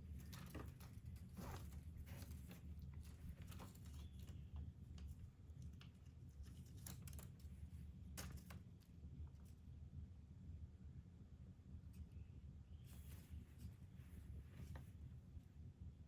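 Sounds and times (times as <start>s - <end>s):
kitten playing clicks and scratches: 0.0s - 9.8s
low steady hum: 0.0s - 16.0s.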